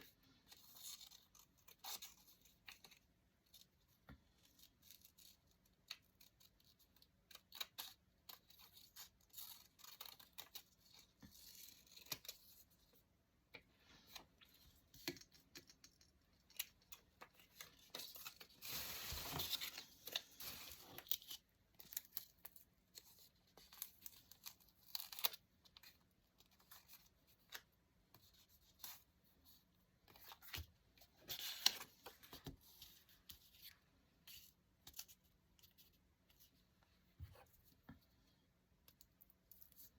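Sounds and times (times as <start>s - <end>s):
paper rustling: 17.3s - 22.2s.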